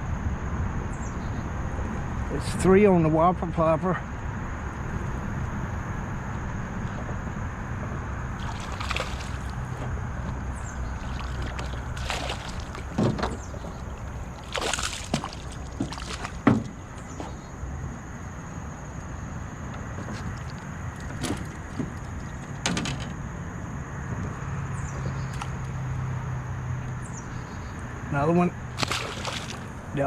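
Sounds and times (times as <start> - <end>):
river water splashing: 6.9 - 23.0, 24.4 - 27.6, 28.6 - 30.0
low rush of moving water: 7.6 - 18.9, 28.7 - 30.0.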